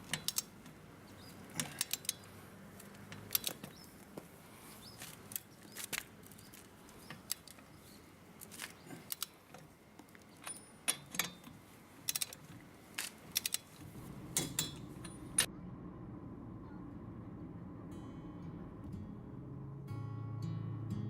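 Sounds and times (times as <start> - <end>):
metallic clicks of hand tools: 0.0 - 0.5, 1.6 - 2.3, 9.0 - 9.6, 12.1 - 12.4, 13.0 - 13.8.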